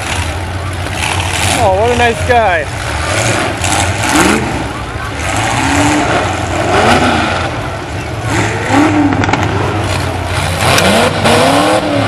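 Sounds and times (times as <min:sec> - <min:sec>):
truck engines revving: 0:00.0 - 0:12.0.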